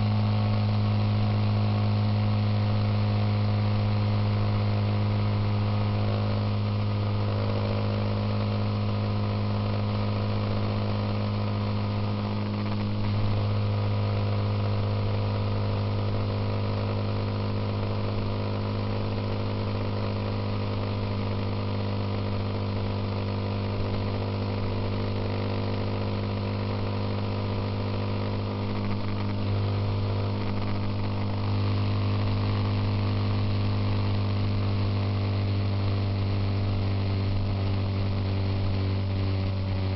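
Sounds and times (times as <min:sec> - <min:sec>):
motorcycle engine cruising: 0:25.7 - 0:34.9.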